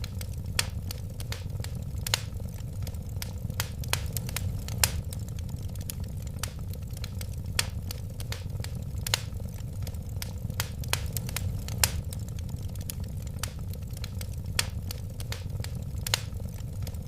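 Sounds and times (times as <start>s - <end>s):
fire crackles and pops: 0.0s - 17.0s
fire flames rumbling: 0.0s - 17.0s.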